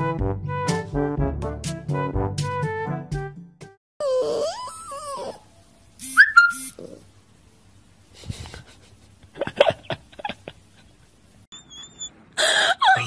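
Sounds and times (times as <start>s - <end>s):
puppy whimpering: 4.0s - 5.5s, 11.5s - 13.0s
puppy squealing: 4.0s - 7.0s, 11.5s - 13.0s
puppy whining: 4.0s - 7.1s, 11.5s - 13.0s.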